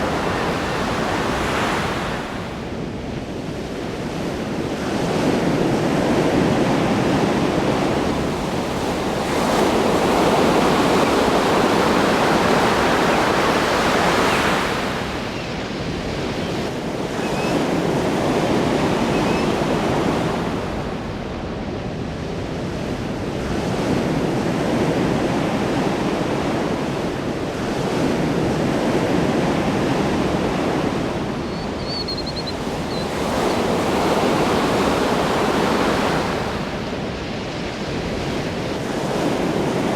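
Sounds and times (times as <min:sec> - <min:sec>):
ocean waves breaking on shore: 0:00.0 - 0:39.9
faint high chirps: 0:31.5 - 0:33.1.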